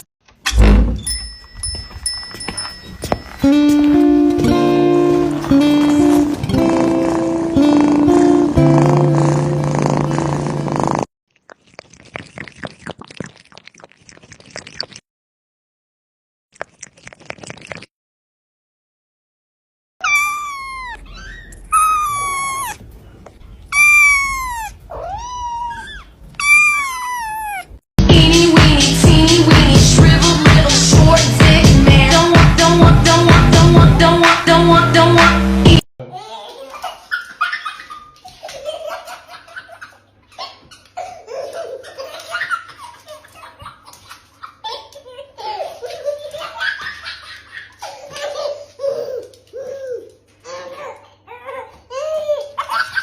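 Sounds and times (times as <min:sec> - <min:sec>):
pet animal high-pitched cries: 0:20.0 - 0:22.8, 0:23.7 - 0:27.8.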